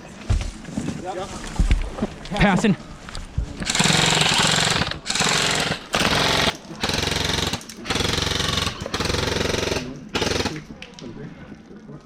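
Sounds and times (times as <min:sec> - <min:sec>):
airsoft rifle firing bursts: 0:03.6 - 0:10.7.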